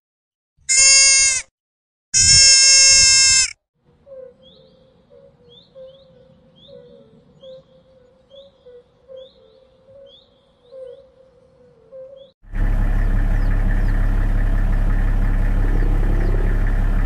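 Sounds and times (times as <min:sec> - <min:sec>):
faint birdsong chirps: 0:03.8 - 0:17.0
hoofed animal calling: 0:15.2 - 0:17.0.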